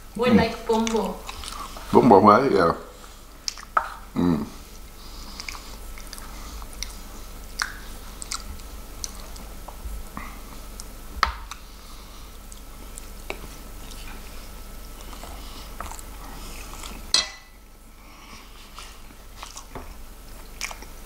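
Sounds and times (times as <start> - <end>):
man chewing with wet mouth sounds: 0.7 - 2.1, 2.9 - 17.2, 17.8 - 21.0
mouth clicks and smacks: 5.4 - 9.8.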